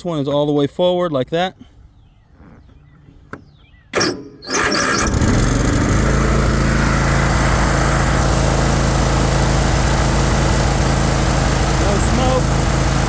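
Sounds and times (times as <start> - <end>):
mower engine cranking and running: 4.0 - 13.0.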